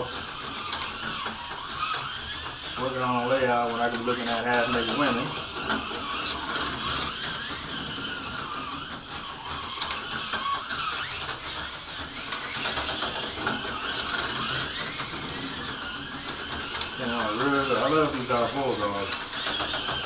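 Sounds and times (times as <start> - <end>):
slot car motors whining: 0.0 - 20.0.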